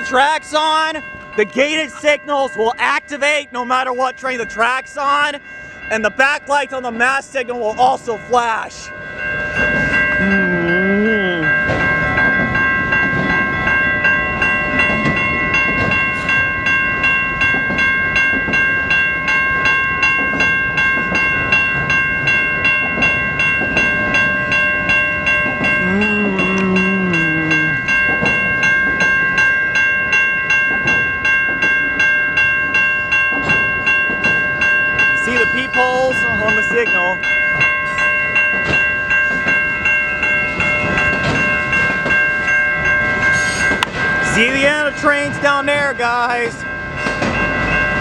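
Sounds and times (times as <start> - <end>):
freight train rumbling past: 0.0 - 48.0
railroad crossing bells ringing: 0.0 - 48.0
short lower tone: 10.2 - 11.7, 25.8 - 27.8.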